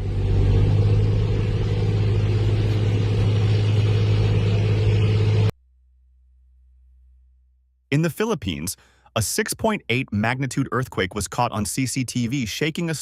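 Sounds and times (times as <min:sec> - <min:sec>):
loud low rumble with hum: 0:00.0 - 0:07.6.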